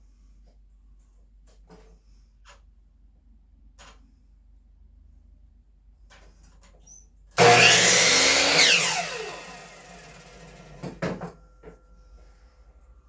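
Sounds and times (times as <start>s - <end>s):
saw spinning down whine: 7.4s - 10.9s
electric saw cutting wood: 7.4s - 11.0s.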